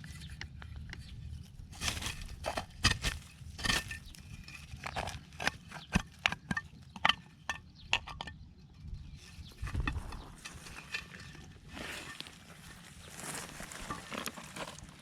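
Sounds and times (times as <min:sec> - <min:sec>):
soft rustling: 0:09.6 - 0:15.0.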